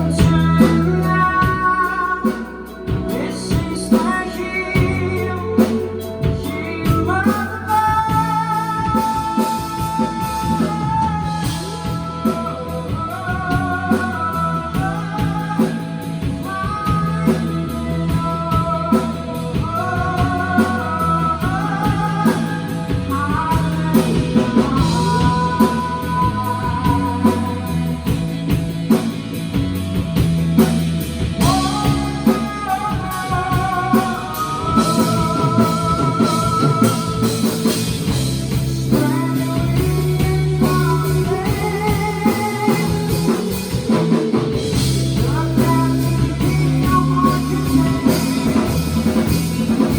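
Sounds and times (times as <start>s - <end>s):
person singing: 0.0s - 29.1s, 31.4s - 49.9s
bass guitar: 0.0s - 49.9s
drum kit: 0.0s - 49.9s
electric guitar: 0.0s - 49.9s.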